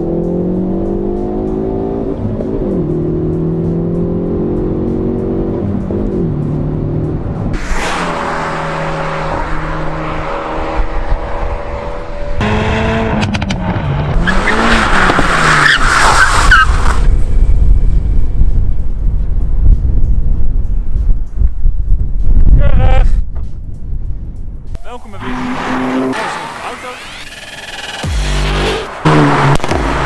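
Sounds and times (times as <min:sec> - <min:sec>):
car engine revving: 0:00.0 - 0:17.5, 0:24.7 - 0:30.0.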